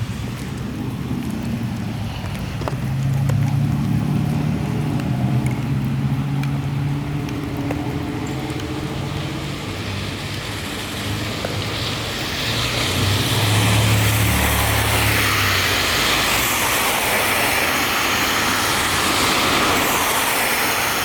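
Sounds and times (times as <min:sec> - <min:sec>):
passing vehicle engine drone: 0:00.0 - 0:21.0
rushing noise: 0:09.0 - 0:21.0.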